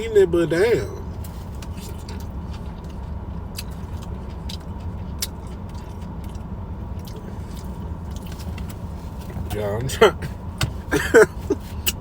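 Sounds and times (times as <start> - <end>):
car idling heard from cabin: 0.0 - 12.0
person eating with crunches: 1.2 - 8.7.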